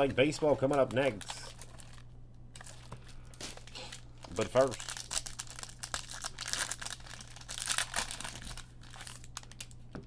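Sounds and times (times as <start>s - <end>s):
foil wrapper tearing and crinkling: 2.6s - 9.8s.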